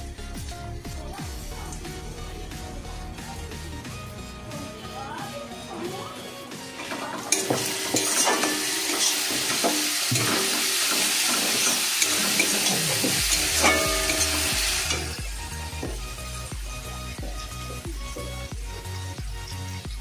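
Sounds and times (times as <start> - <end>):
food sizzling in hot oil: 6.6 - 18.2.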